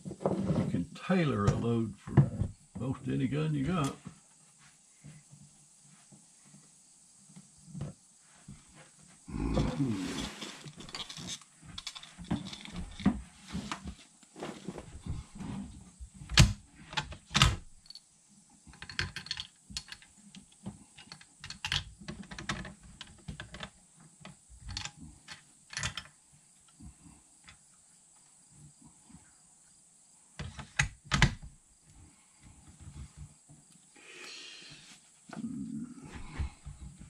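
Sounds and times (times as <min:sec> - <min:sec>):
small hard objects clicking and knocking: 0:10.1 - 0:13.1, 0:18.6 - 0:23.8.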